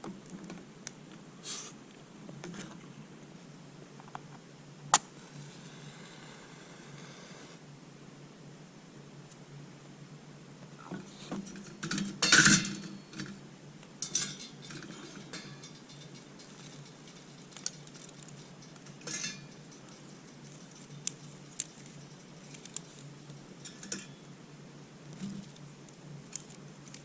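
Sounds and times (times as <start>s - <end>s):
metal utensil scraping cookware: 14.0s - 17.5s, 19.0s - 21.0s.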